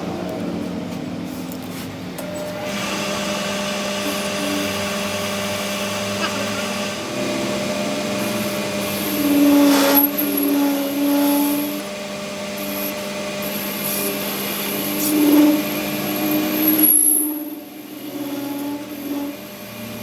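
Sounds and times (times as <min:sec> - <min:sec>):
machine motor humming: 0:00.0 - 0:20.0.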